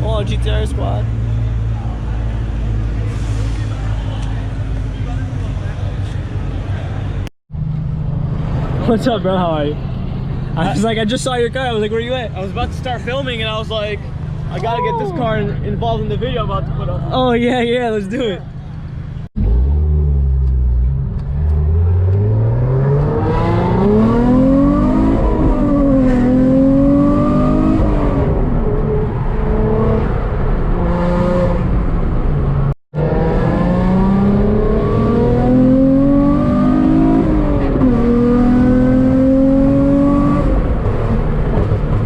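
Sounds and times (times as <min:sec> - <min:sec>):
sports car engine accelerating: 0:18.5 - 0:42.0.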